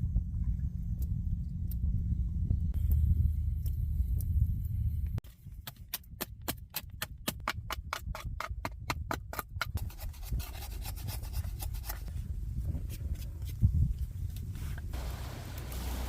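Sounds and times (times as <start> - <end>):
hand tool scraping material: 9.8 - 12.2.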